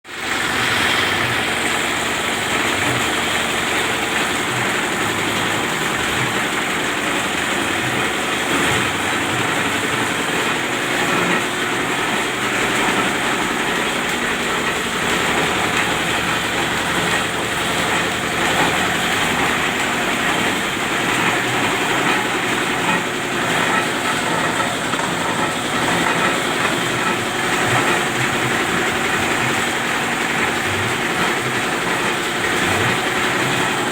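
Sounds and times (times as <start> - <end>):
grinding machine running: 0.0 - 33.9.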